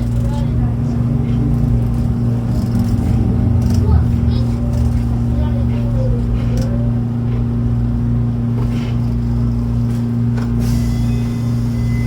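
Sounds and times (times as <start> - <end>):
electric train hum: 0.0 - 12.0
train rumble: 0.0 - 12.0.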